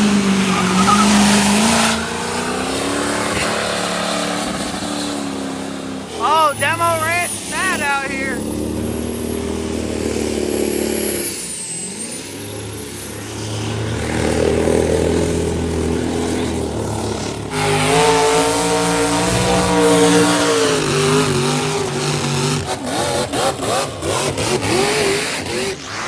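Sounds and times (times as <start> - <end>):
loud engine steady note: 0.0 - 26.0
vehicle engines revving: 0.0 - 26.0.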